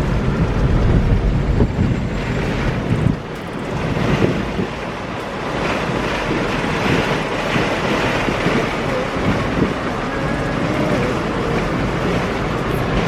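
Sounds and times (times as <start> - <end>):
low rumble: 0.0 - 4.8
car road and wind noise: 0.0 - 13.0.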